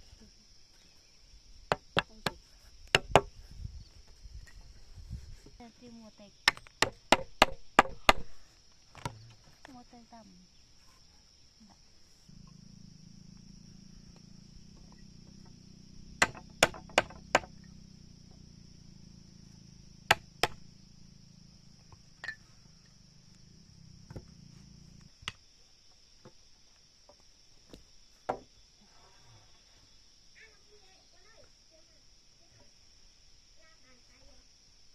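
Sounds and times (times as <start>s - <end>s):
high insect drone: 0.0s - 34.9s
hammer striking wood: 1.7s - 3.3s, 6.5s - 8.4s, 16.2s - 17.5s, 20.1s - 20.6s.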